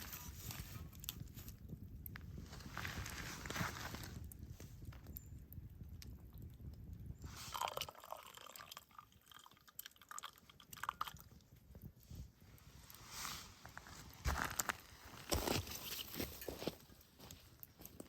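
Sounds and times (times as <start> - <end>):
crunching footsteps on rough ground: 13.2 - 18.0.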